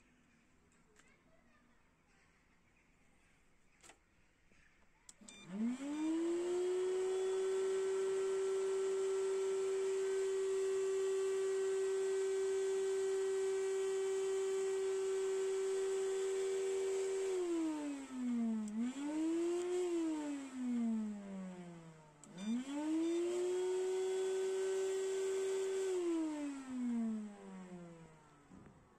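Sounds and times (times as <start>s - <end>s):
vacuum cleaner motor whine: 5.1s - 28.9s.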